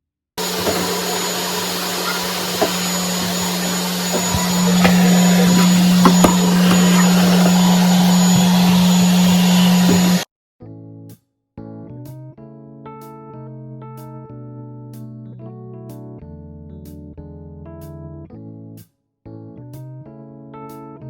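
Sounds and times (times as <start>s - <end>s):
vacuum cleaner humming: 0.4s - 10.2s.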